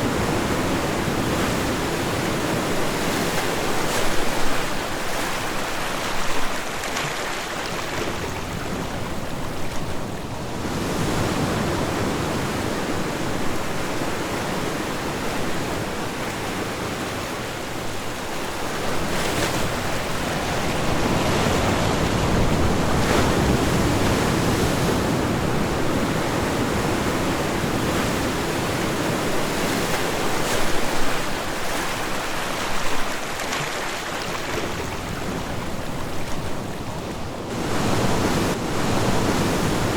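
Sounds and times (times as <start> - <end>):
ocean waves washing on beach: 0.0 - 39.9
wave splashes: 0.0 - 39.9.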